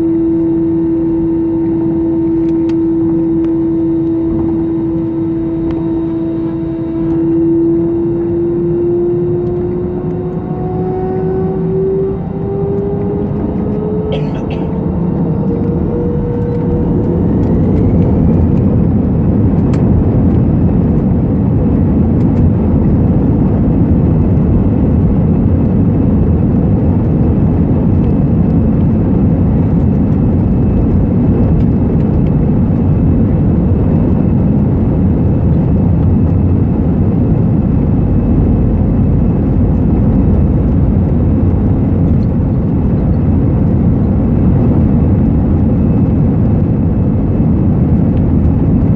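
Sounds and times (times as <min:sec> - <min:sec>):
jet engines spooling up: 0:00.0 - 0:24.6.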